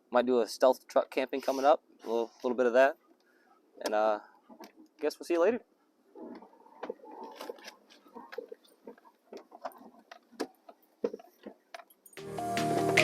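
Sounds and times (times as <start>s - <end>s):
background music: 12.1s - 13.0s.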